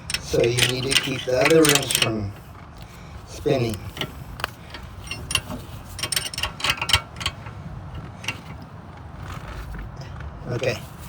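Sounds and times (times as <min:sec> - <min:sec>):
metal wrench clicking on bolt: 0:00.0 - 0:02.9, 0:03.5 - 0:08.6.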